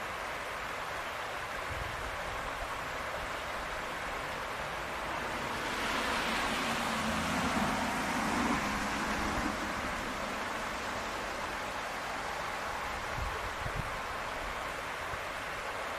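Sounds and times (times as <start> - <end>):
rain-wet street hiss: 0.0 - 15.9
vehicle on wet road: 3.8 - 14.4.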